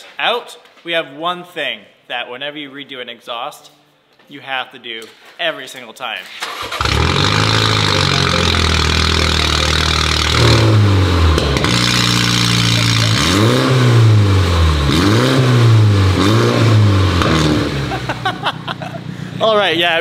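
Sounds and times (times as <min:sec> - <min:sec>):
car engine idling and revving: 0:06.6 - 0:19.4.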